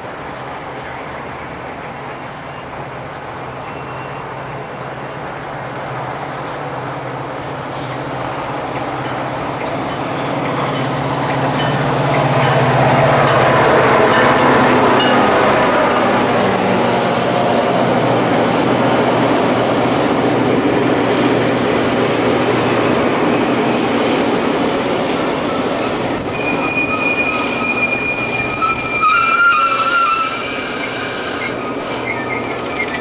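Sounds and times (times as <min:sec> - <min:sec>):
train wheels rumbling on rail: 0:00.0 - 0:33.0
high wheel squeal: 0:16.8 - 0:17.9, 0:24.9 - 0:33.0.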